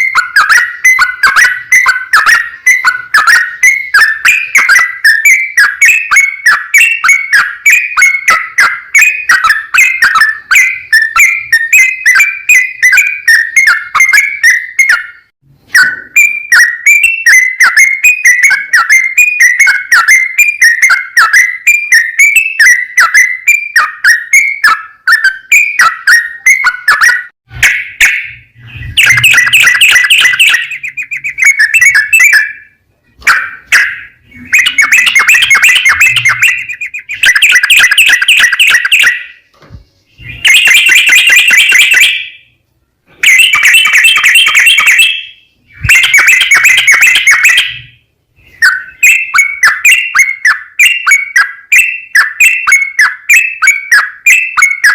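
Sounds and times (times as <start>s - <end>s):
bulbul singing: 0.0s - 54.9s.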